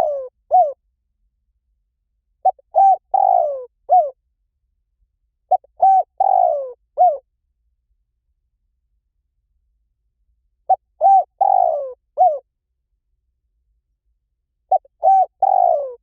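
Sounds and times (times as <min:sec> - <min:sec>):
dove cooing: 0:00.0 - 0:00.8, 0:02.4 - 0:04.2, 0:05.5 - 0:07.2, 0:10.7 - 0:12.4, 0:14.7 - 0:16.0.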